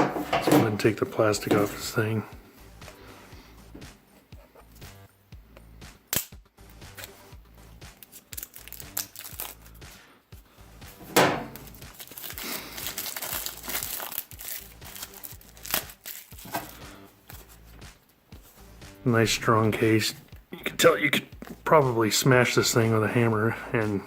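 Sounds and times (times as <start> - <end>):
plastic snapping: 6.1 - 6.4
plastic wrapping crinkling: 7.9 - 9.8, 11.4 - 17.8.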